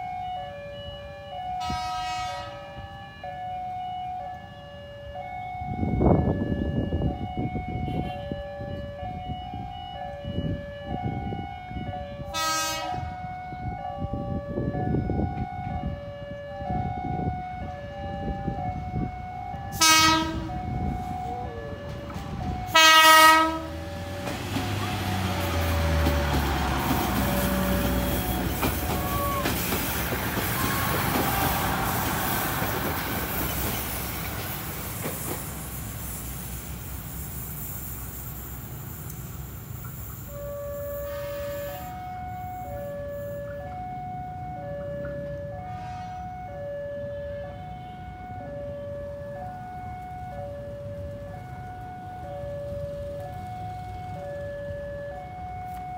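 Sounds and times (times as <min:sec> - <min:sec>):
train passing: 0:00.0 - 0:55.9
two-tone crossing warning signal: 0:00.0 - 0:55.9
train horn blasts: 0:01.6 - 0:02.8, 0:07.0 - 0:08.5, 0:11.2 - 0:14.4, 0:19.7 - 0:21.7, 0:22.6 - 0:23.8, 0:25.2 - 0:29.5, 0:40.3 - 0:43.6, 0:45.6 - 0:48.1.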